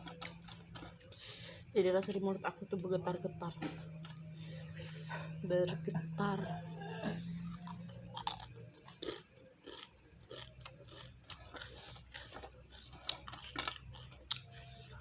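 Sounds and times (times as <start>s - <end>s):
chewing crisp leaves: 0.0s - 2.2s, 6.9s - 15.0s.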